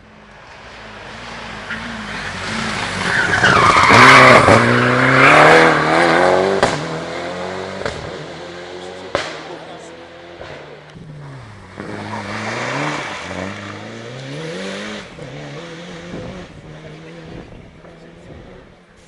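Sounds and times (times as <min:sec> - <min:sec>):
rally car engine accelerating: 0:00.7 - 0:18.9.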